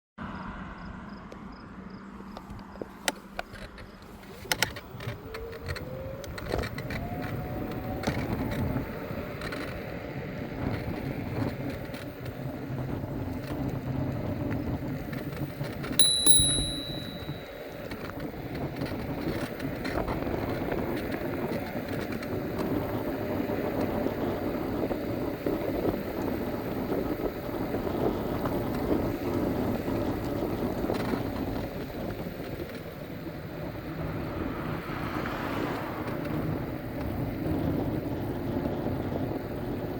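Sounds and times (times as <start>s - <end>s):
scooter clicks: 2.4s - 22.7s
electric scooter motor whine: 4.4s - 15.8s, 36.2s - 39.9s
bell ringing: 16.0s - 17.8s.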